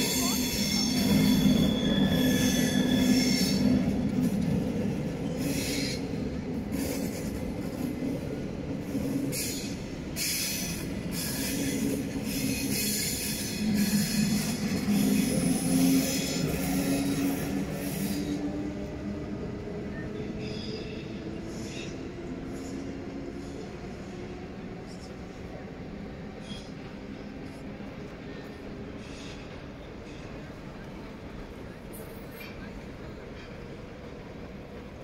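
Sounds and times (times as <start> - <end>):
high-pitched wheel squeal: 0.0 - 3.9
train rumbling over switches: 0.0 - 35.0.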